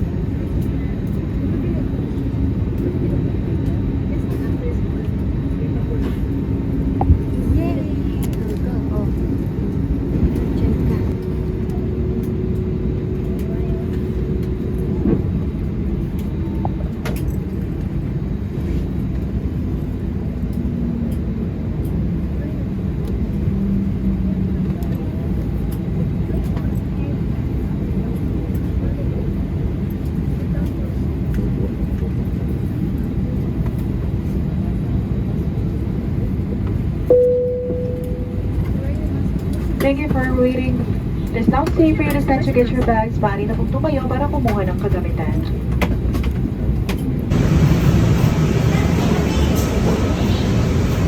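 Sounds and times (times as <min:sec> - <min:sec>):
aircraft engines rumbling in cabin: 0:00.0 - 0:51.0
cabin chime: 0:37.1 - 0:38.5.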